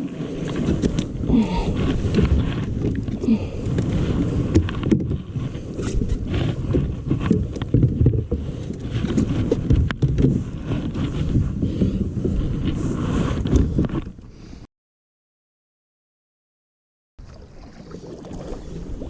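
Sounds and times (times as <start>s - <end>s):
wind rumbling on microphone: 0.0s - 14.5s
water splashing: 17.2s - 19.0s.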